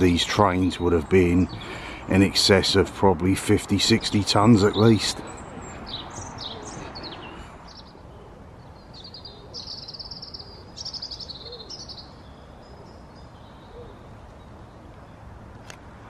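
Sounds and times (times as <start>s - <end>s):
outdoor background hum: 0.0s - 16.0s
songbird trilling: 3.8s - 14.5s.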